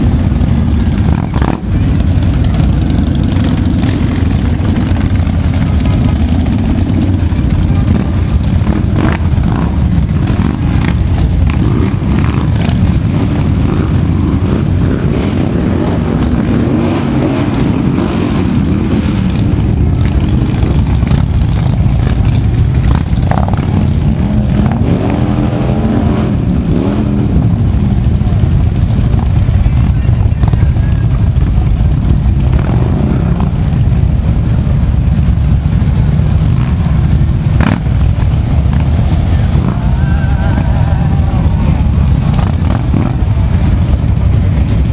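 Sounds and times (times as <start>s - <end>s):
motorcycle engines running: 0.0s - 44.9s.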